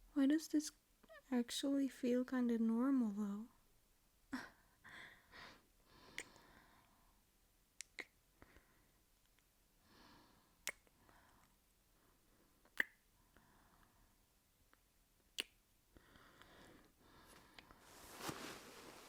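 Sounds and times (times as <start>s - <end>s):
faint breaths: 4.8s - 7.2s, 15.9s - 19.0s
wet lip smacks kissing: 7.8s - 8.2s, 10.6s - 10.9s, 12.8s - 13.0s, 15.4s - 15.6s.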